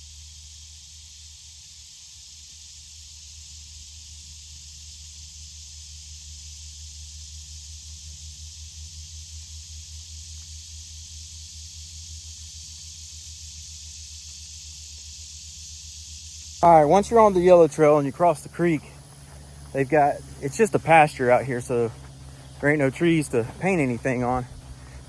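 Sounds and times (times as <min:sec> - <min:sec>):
creek water rushing: 0:16.6 - 0:25.0.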